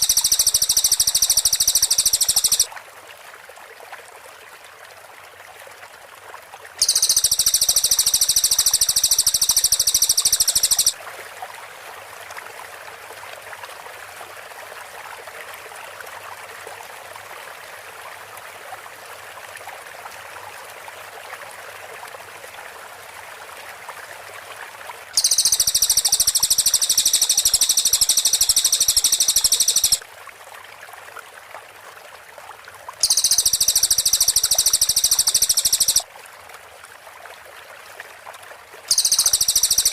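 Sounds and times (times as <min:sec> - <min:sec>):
songbird singing dense high notes: 0:00.0 - 0:02.7, 0:06.8 - 0:10.9, 0:25.2 - 0:30.0, 0:33.0 - 0:36.0, 0:38.9 - 0:39.9.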